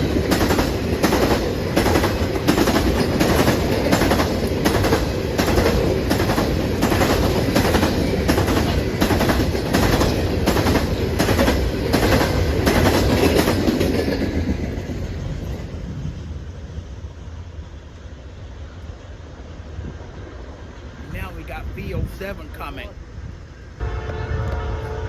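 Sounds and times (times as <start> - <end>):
train wheels clicking on rails: 0.0 - 17.1.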